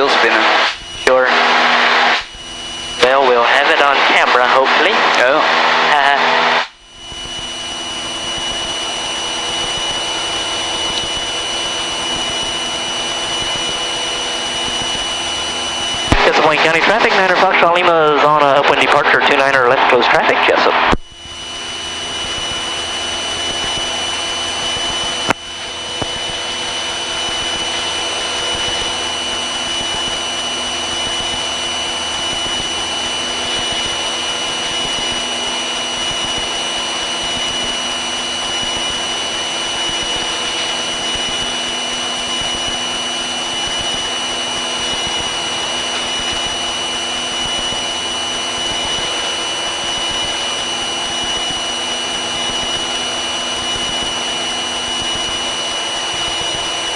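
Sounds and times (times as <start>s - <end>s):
aircraft engine and propeller drone: 0.0s - 56.9s.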